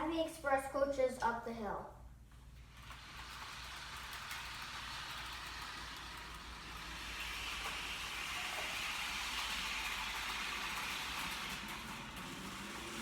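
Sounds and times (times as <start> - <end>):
model train running on rails: 2.6 - 13.0.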